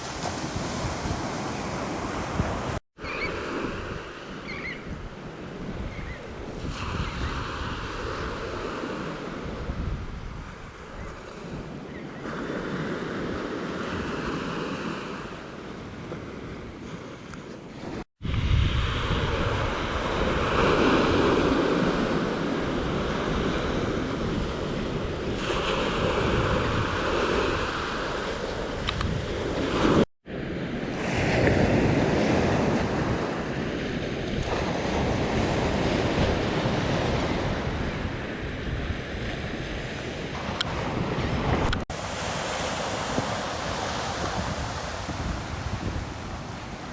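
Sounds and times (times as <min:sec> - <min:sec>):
ocean waves breaking: 0:00.0 - 0:02.8, 0:41.9 - 0:46.9
wind rumbling on microphone: 0:00.0 - 0:11.8, 0:16.1 - 0:30.7, 0:34.0 - 0:46.9.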